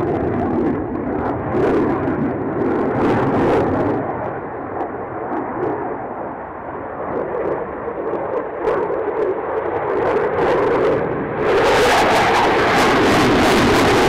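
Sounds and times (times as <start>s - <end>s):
aircraft engine rumble: 0.0s - 14.0s.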